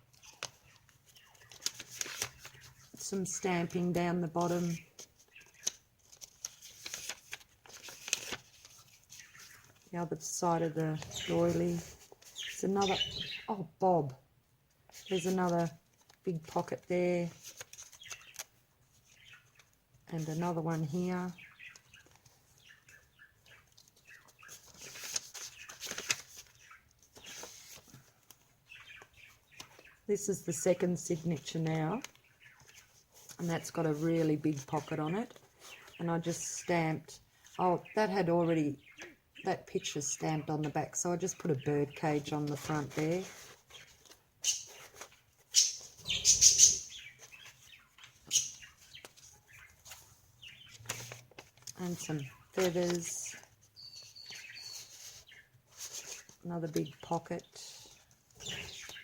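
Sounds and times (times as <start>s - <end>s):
paper pages turning: 0.0s - 2.9s, 4.5s - 9.9s, 17.3s - 19.7s, 23.4s - 29.8s, 42.5s - 45.9s, 47.0s - 57.0s
pet bird chirping: 10.8s - 13.6s, 43.7s - 50.9s, 51.8s - 55.5s, 57.8s - 59.0s.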